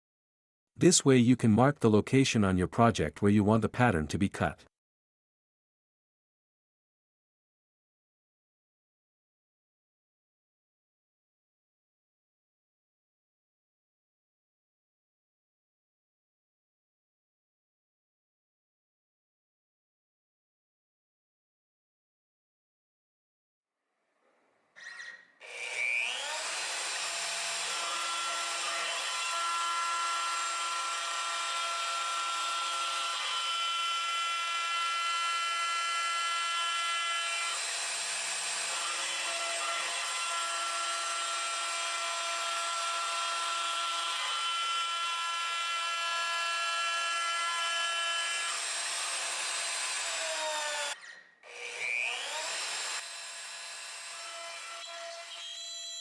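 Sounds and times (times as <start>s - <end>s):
router spindle whine: 25.4s - 56.0s.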